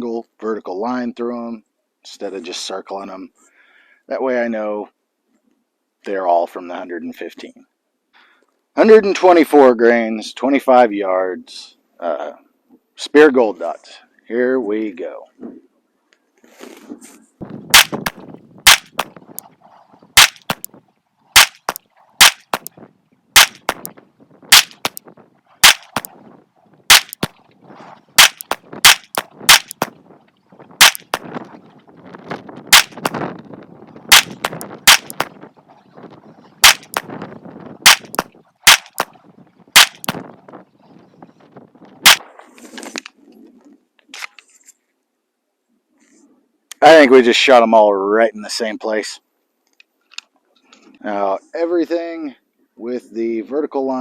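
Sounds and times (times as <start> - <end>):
pistol firing single shots: 17.7 - 19.1, 20.2 - 20.7, 21.4 - 22.7, 23.4 - 23.9, 24.5 - 25.0, 25.6 - 26.1, 26.9 - 27.3, 28.2 - 29.9, 30.8 - 31.2, 32.7 - 33.2, 34.1 - 35.3, 36.6 - 37.1, 37.9 - 39.1, 39.8 - 40.2.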